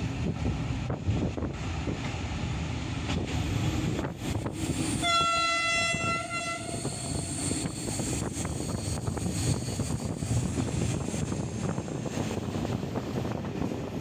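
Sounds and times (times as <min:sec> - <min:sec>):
moving train coach rumble: 0:00.0 - 0:14.0
train horn blast: 0:05.0 - 0:07.2.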